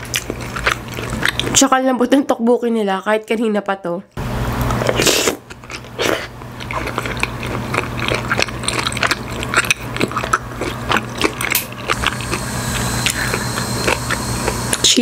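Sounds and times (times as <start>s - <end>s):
wet chewing mouth clicks: 0.0s - 1.6s, 4.7s - 14.8s
low steady hum: 5.6s - 15.0s.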